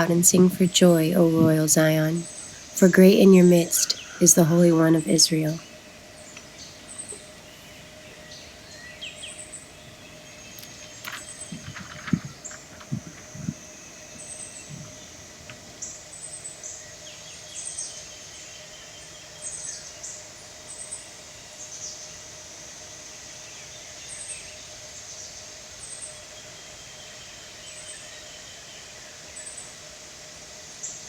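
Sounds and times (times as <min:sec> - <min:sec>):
steady high-pitched tone: 0:00.0 - 0:16.0
small birds chirping: 0:00.0 - 0:21.0.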